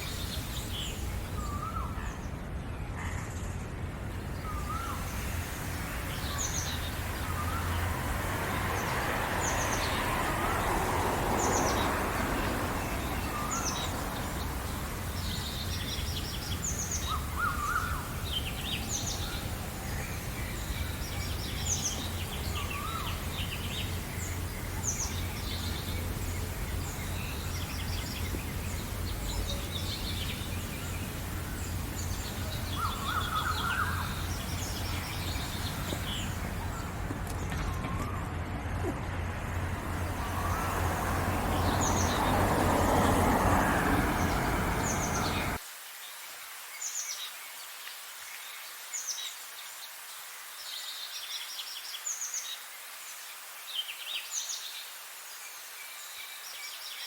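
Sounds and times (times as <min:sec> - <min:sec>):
songbirds chirping and trilling: 0:00.0 - 0:45.6
low bird calls: 0:20.2 - 0:45.6.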